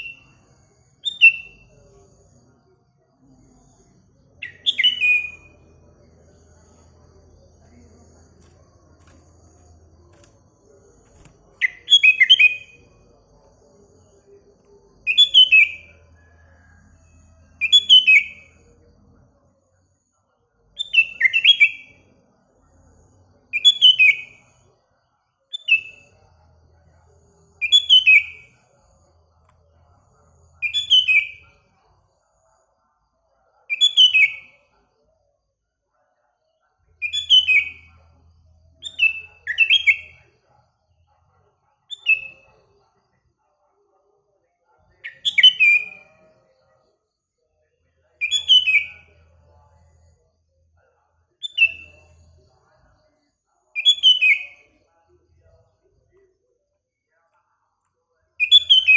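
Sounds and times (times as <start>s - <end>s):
bulbul chirping song: 0.0s - 2.0s, 4.4s - 16.0s, 17.6s - 18.6s, 27.6s - 28.6s, 30.6s - 31.5s, 37.0s - 38.0s, 38.8s - 40.3s, 45.1s - 46.3s, 48.2s - 49.2s, 51.4s - 52.1s, 53.8s - 54.8s, 58.4s - 58.9s.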